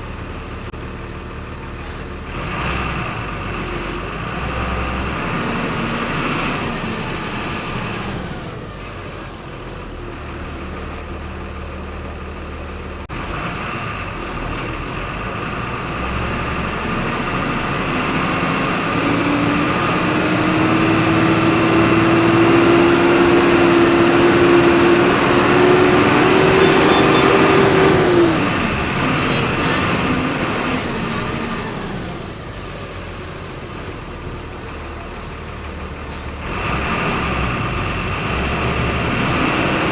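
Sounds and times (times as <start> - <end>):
bus engine accelerating: 0.0 - 39.9
engine whine: 16.6 - 35.0.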